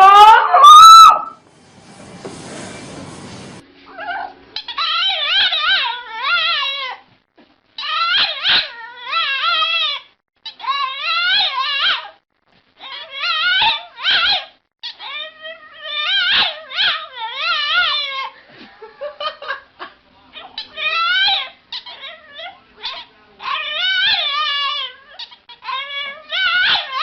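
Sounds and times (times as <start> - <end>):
dog whining and howling: 0.0 - 1.4, 3.9 - 7.0, 7.8 - 12.2, 12.8 - 18.4, 20.6 - 27.0.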